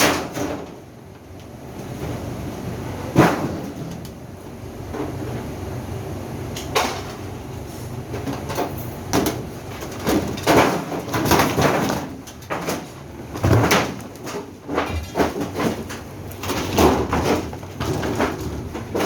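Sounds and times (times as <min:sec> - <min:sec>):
parts knocking and clattering: 0:08.2 - 0:19.0.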